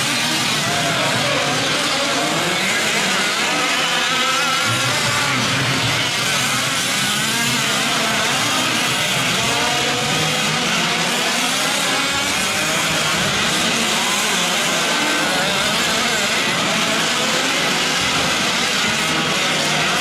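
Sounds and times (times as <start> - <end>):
small two-stroke engines revving: 0.0 - 20.0.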